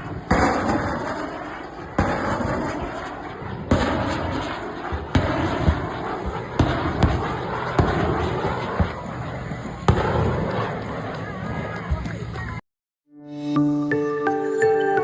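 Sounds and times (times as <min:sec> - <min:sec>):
explosive blasts: 0:00.0 - 0:11.1.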